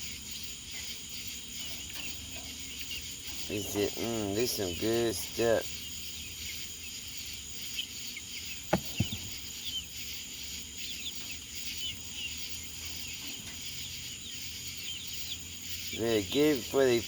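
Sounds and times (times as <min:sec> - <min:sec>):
high insect-like drone: 0:00.0 - 0:17.0
small birds chirping: 0:00.0 - 0:17.0
sharp knocks: 0:08.7 - 0:09.4.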